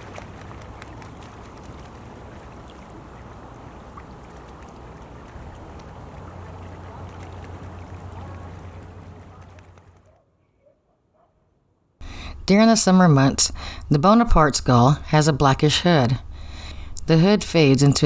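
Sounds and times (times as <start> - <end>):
running water rushing: 0.0 - 10.0
small water splashes: 0.0 - 10.0.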